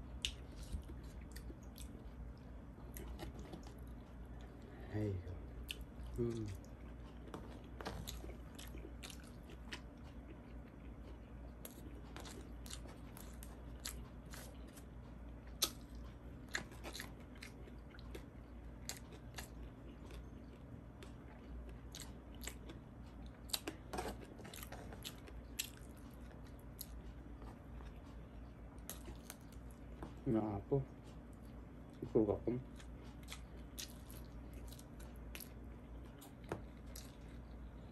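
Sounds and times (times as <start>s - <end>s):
person chewing and biting food: 0.0s - 4.7s, 5.5s - 30.3s, 32.6s - 37.9s
steady low hum: 0.0s - 37.9s.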